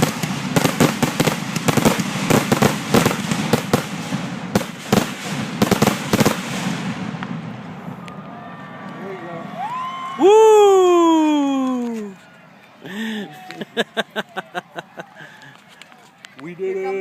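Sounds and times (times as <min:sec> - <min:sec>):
fireworks cracking and banging: 0:00.0 - 0:09.0.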